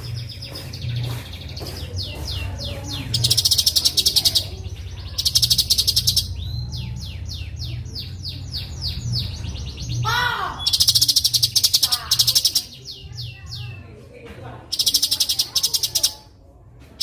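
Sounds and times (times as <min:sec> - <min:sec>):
bulbul singing: 0:00.0 - 0:16.4
fast buzzing bird trills: 0:14.7 - 0:16.1.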